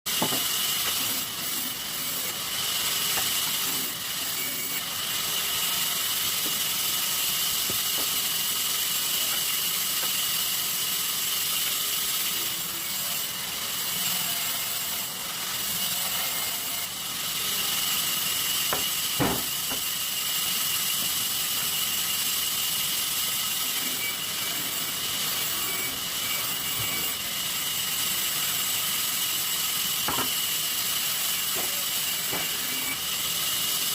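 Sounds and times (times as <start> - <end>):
sawmill machinery hissing and whining: 0.1 - 33.9.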